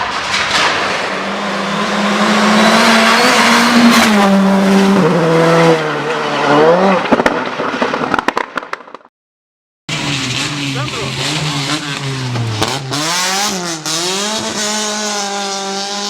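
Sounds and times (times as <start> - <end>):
rally car engine revving: 0.0 - 7.9, 9.9 - 16.0
sharp cracks: 7.0 - 9.1.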